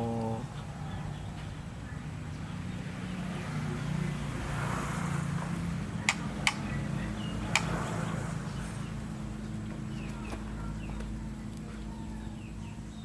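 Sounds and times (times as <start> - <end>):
low motor hum: 0.0 - 1.0
sharp clicks: 7.6 - 7.8.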